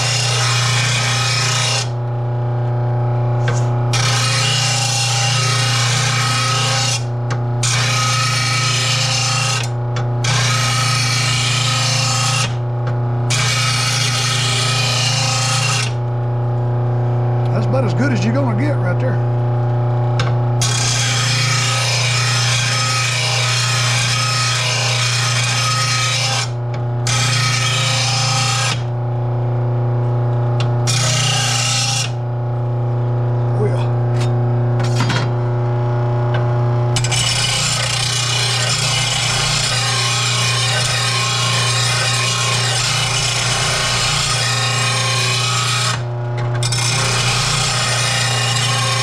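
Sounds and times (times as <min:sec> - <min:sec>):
blade grinding on disc: 0:00.0 - 0:02.0, 0:03.4 - 0:12.6, 0:13.3 - 0:16.0, 0:20.1 - 0:28.9, 0:30.8 - 0:32.2, 0:34.0 - 0:35.4, 0:36.3 - 0:49.0
grinder motor humming: 0:00.0 - 0:49.0.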